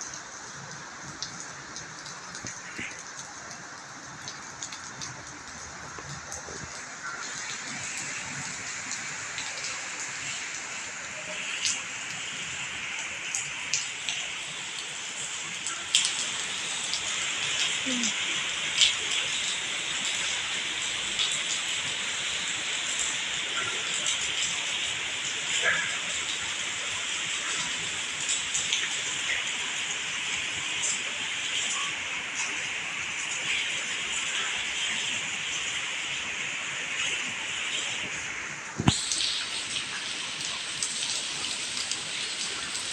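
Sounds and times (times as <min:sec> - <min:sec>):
heavy rain hissing: 0:00.0 - 0:42.9
raindrop taps: 0:01.0 - 0:09.8, 0:38.7 - 0:42.5.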